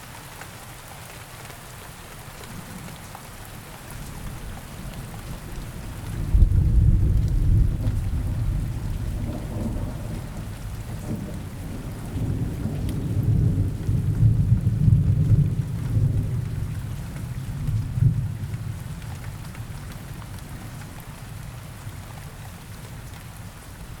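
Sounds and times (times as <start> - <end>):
steady rain in forest: 0.0 - 24.0
low rumble of thunder: 2.5 - 24.0.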